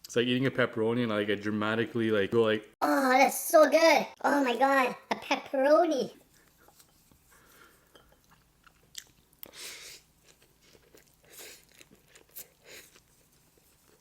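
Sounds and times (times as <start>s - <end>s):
person chewing food: 6.3s - 14.0s.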